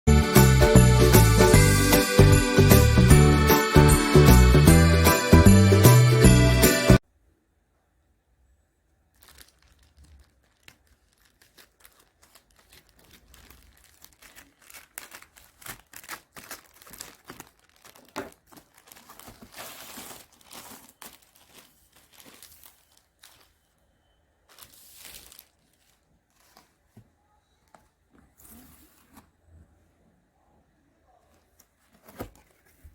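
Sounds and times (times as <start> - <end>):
crinkling and rustling: 9.1 - 23.8, 24.4 - 29.5, 31.2 - 32.9.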